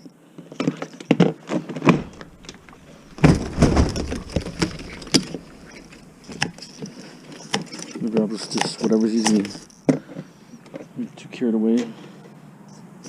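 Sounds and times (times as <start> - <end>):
clatter of parts: 0.5 - 10.9
hard parts knocking and clicking: 1.8 - 10.9.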